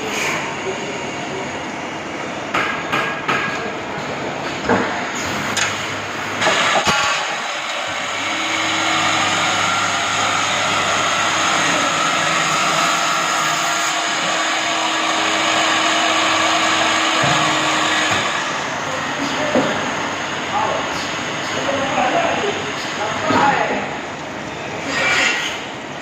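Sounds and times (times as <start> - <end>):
drilling machine motor whirr: 6.4 - 18.9.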